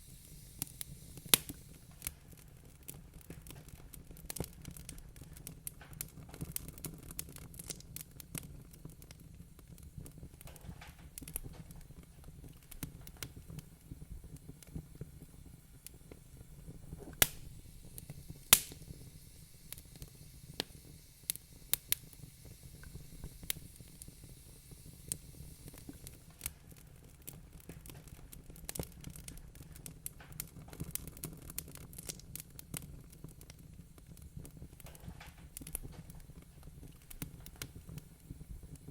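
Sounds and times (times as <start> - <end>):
low fire rumble: 0.0 - 38.9
wood fire crackling: 0.0 - 38.9
sharp loud pops: 17.0 - 17.5, 18.4 - 19.0.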